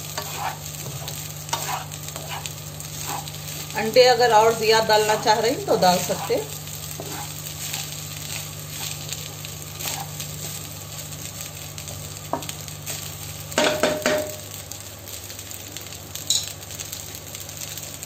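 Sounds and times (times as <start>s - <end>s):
spatula stirring and scraping: 0.0s - 3.8s, 4.9s - 10.6s
rice sizzling in a wok: 0.0s - 18.0s
spatula knocking against pan: 13.6s - 14.4s.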